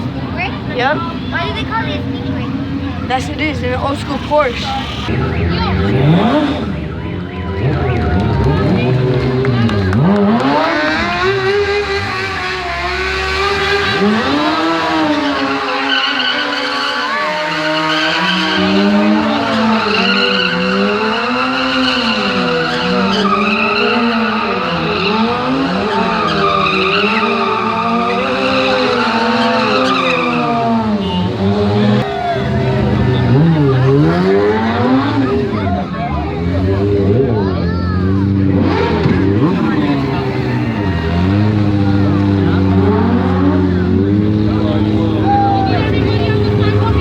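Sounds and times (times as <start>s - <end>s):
car sound rising and falling: 2.0s - 47.0s.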